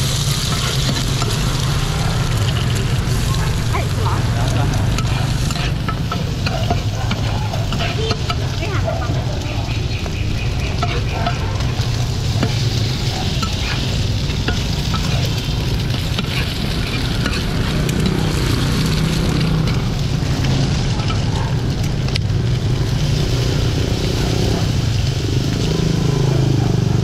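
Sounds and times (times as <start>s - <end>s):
food sizzling in bubbling oil: 0.0s - 27.0s
steady low rumble: 0.0s - 27.0s
metal spatula scraping pan: 0.2s - 21.3s.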